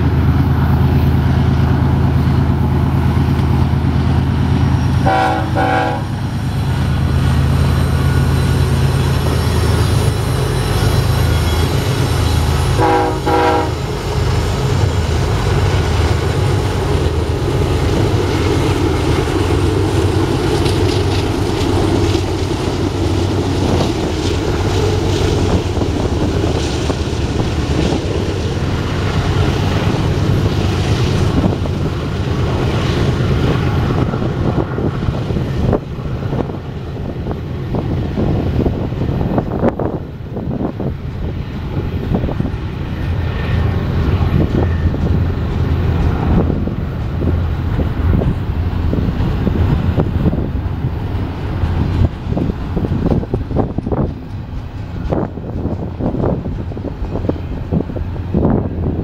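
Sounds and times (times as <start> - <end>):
diesel locomotives rumbling: 0.0 - 59.0
train horn blasts: 5.0 - 6.2, 12.8 - 13.9
steel wheels clattering on rails: 13.8 - 59.0.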